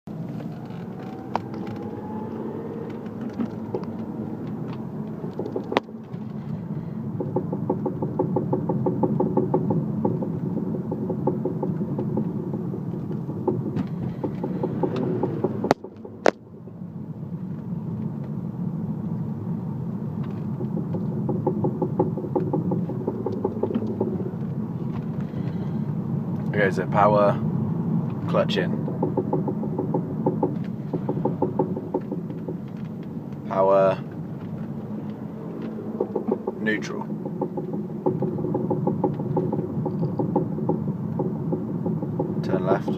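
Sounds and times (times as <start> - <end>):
car engine and road noise: 0.0 - 42.9
rapid even knocking: 7.2 - 16.4, 20.6 - 24.4, 28.8 - 33.6, 35.6 - 42.9.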